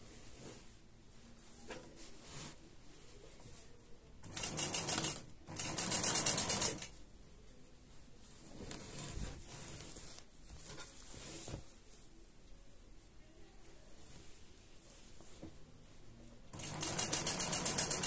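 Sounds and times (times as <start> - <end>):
sewing machine stitching: 4.2 - 6.9, 16.6 - 18.0.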